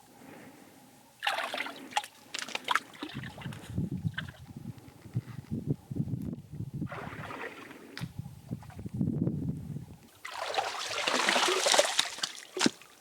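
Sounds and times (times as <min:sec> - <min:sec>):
water sloshing and splashing: 0:01.2 - 0:04.4, 0:06.8 - 0:08.9, 0:10.2 - 0:13.0.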